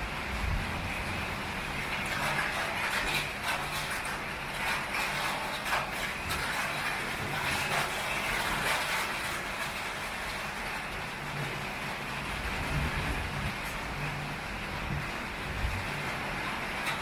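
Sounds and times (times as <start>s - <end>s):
heavy rain on a tin roof: 0.0s - 17.0s.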